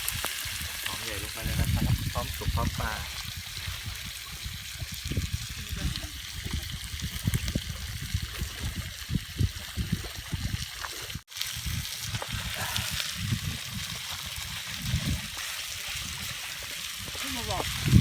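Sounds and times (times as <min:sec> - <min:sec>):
wind buffeting microphone: 0:00.0 - 0:18.0
surf washing on shore: 0:16.4 - 0:18.0.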